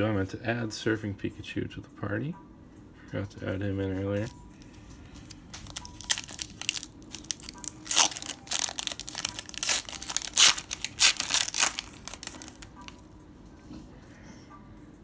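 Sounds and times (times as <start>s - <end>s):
foil wrapper tearing and crinkling: 5.2s - 13.0s.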